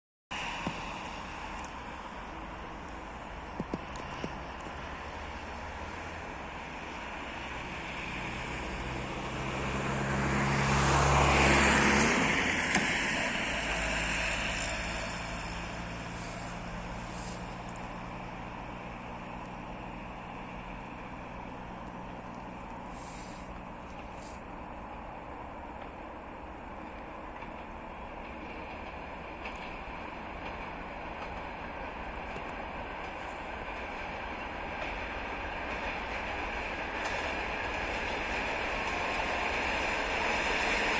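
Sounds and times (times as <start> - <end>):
electric train passing: 0.3 - 40.9.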